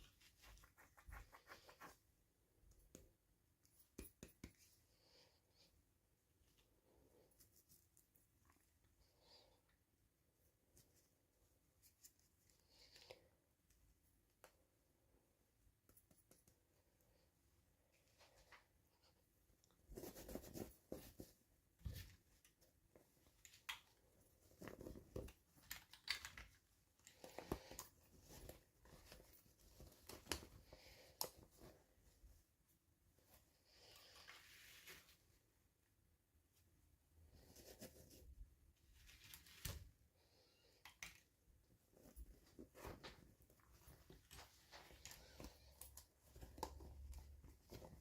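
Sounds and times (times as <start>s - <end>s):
soft rustle: 0.0s - 48.0s.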